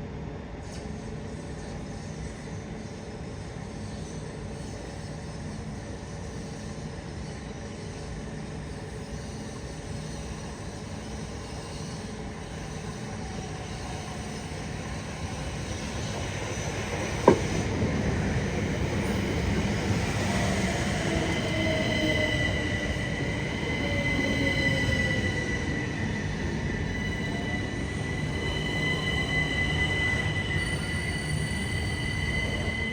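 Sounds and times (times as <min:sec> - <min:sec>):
train running on rails: 0:00.0 - 0:32.9.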